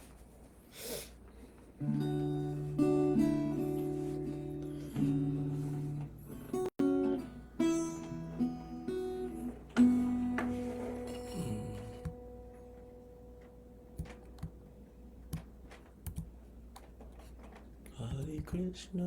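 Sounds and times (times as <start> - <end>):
acoustic guitar chords strummed: 1.8 - 15.8.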